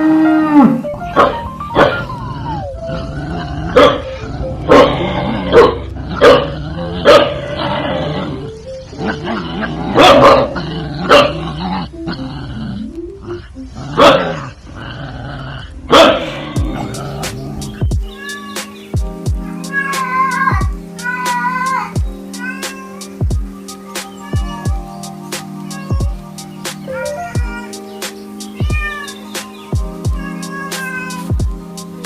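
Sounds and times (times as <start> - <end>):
background music: 0.0 - 14.7, 15.9 - 32.0
dog barking: 1.2 - 2.1, 3.8 - 7.4, 10.0 - 11.4, 14.0 - 14.4, 15.9 - 16.4.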